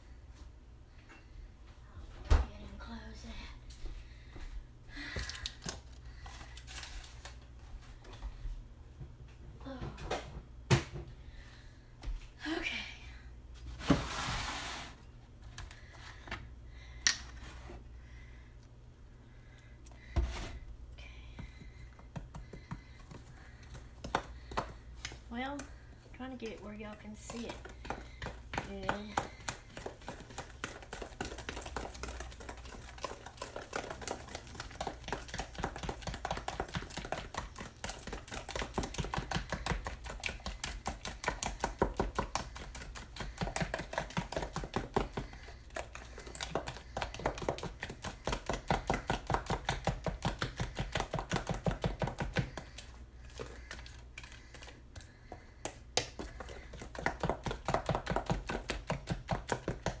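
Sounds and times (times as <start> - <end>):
utensil beating batter in bowl: 21.2 - 60.0.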